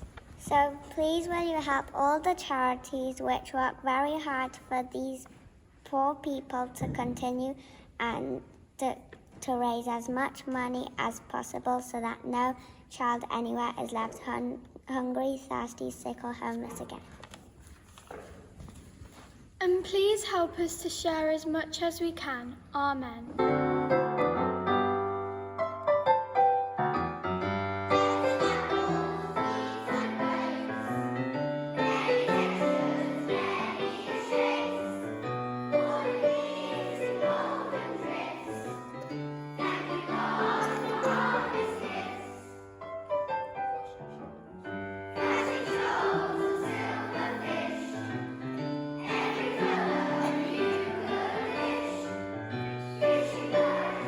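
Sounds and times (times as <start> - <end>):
piano accompaniment: 23.3 - 54.0
choir singing: 27.9 - 42.7, 45.1 - 54.0.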